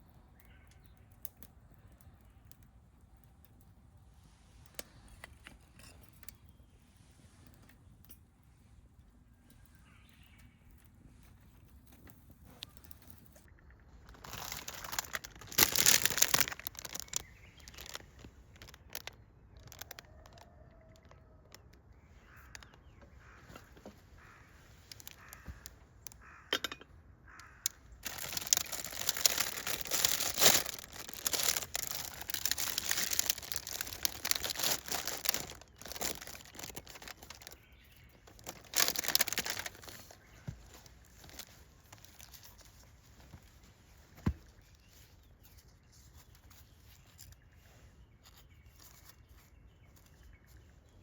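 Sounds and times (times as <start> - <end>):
rustling and crinkling: 10.6 - 26.2, 27.4 - 51.0.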